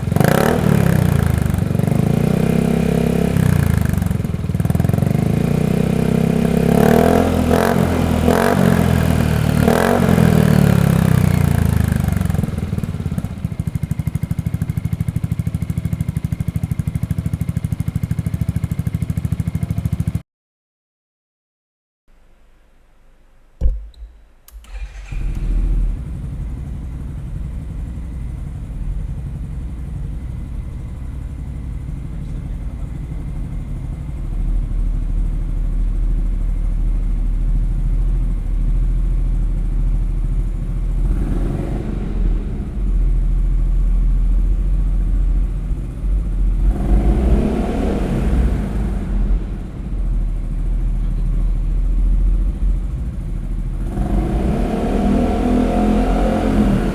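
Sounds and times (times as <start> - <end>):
engine throttle revs: 0.0 - 14.9, 24.5 - 56.9
scooter engine idling: 0.0 - 20.2, 24.6 - 54.6
scooter engine starting up: 24.5 - 41.0.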